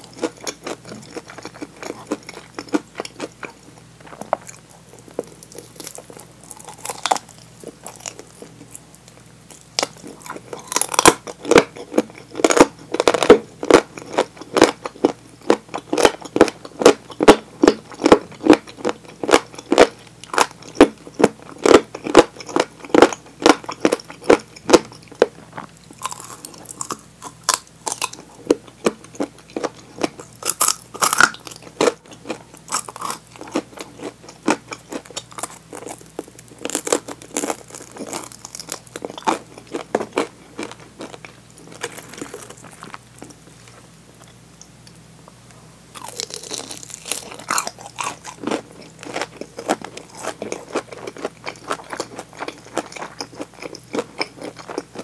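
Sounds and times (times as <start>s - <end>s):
crunching fried chicken: 0.0s - 44.6s, 45.9s - 55.0s.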